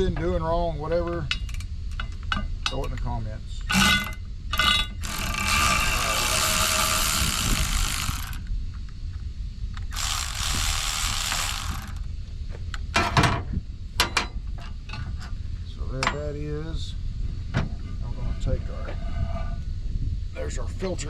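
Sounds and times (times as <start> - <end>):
ratchet wrench clicking: 4.6 - 8.5, 9.9 - 12.0.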